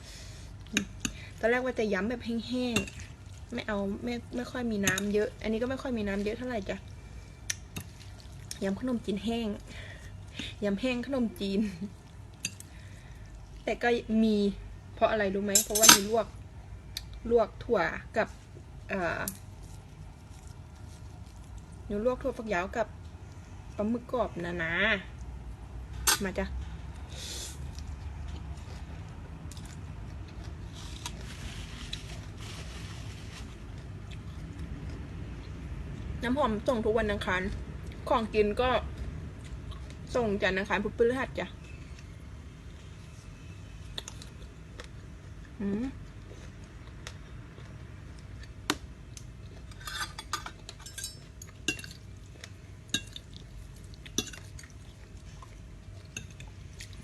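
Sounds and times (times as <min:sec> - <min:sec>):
low steady hum: 0:00.0 - 0:57.0
chewing with crisp crunches: 0:02.8 - 0:10.6, 0:19.3 - 0:21.9, 0:27.0 - 0:36.2, 0:37.2 - 0:40.2, 0:41.5 - 0:57.0
utensils clinking against a dish: 0:15.6 - 0:16.2, 0:49.7 - 0:52.0, 0:52.9 - 0:53.3, 0:54.2 - 0:54.5.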